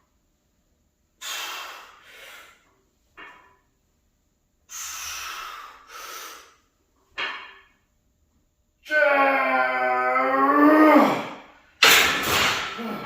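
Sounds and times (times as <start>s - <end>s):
man breathing hard: 1.2s - 2.6s, 4.7s - 6.6s.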